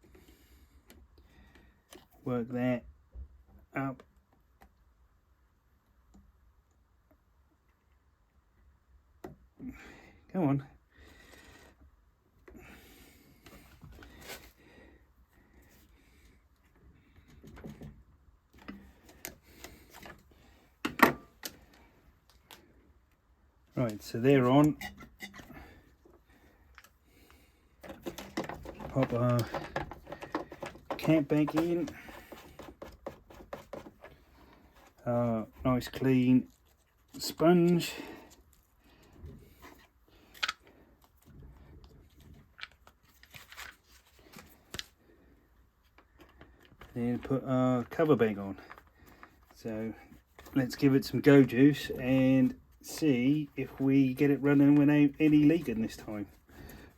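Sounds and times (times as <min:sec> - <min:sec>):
soft rustling and crinkling: 0:13.1 - 0:56.9
clicks and knocks of fuel pipes: 0:27.8 - 0:34.2.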